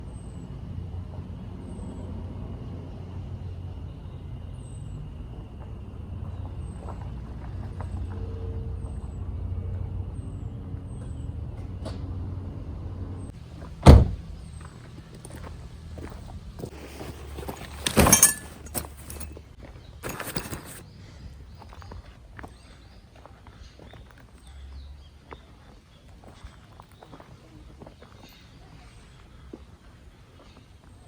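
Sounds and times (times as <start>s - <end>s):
car door shutting: 13.7s - 14.4s.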